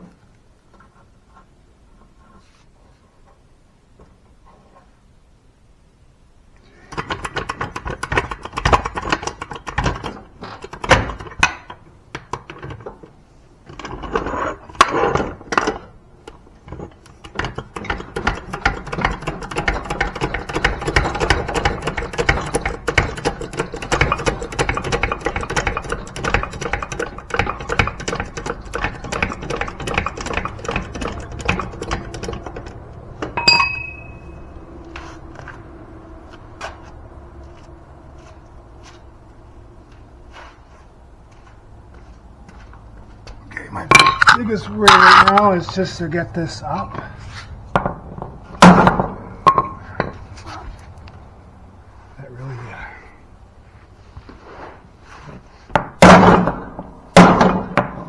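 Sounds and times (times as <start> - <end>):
metal parts knocking: 6.8 - 13.0, 13.7 - 34.6, 43.8 - 46.1, 47.8 - 50.2
fast metallic rattling: 16.3 - 34.7, 43.6 - 47.0.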